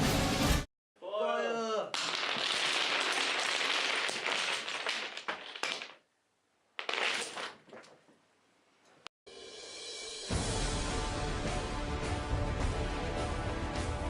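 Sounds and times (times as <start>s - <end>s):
wooden blocks clattering: 2.0s - 6.1s, 6.8s - 8.2s.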